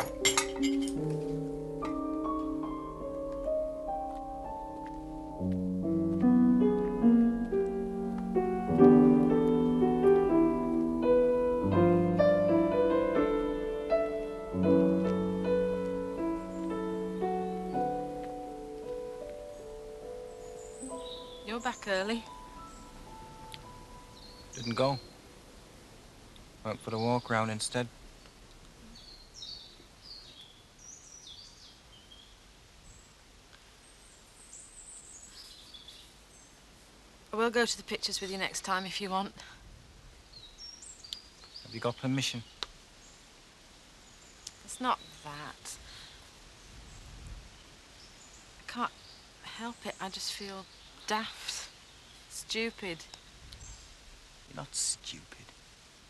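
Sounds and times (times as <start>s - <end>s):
slow piano piece: 0.0s - 25.6s
birdsong high chirping: 0.0s - 33.2s, 33.8s - 36.7s, 37.4s - 39.4s, 40.2s - 54.0s
low background hiss: 0.0s - 56.0s.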